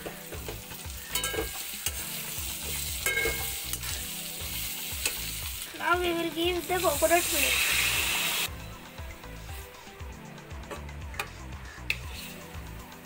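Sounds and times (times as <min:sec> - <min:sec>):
food sizzling in a pan: 0:00.0 - 0:08.5, 0:11.8 - 0:13.0
metal spatula scraping pan: 0:03.0 - 0:04.0, 0:11.9 - 0:12.6.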